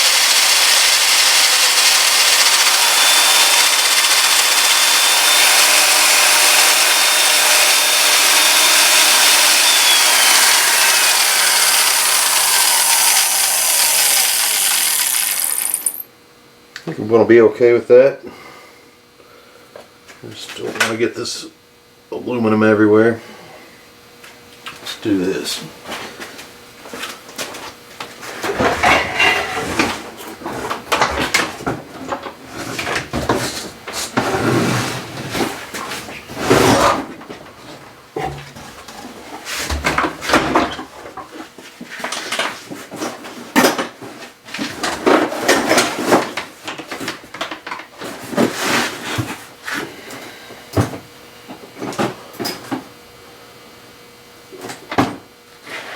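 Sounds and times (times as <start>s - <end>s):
electric drill grinding metal: 0.0s - 16.1s
thin falling whine: 0.2s - 16.1s.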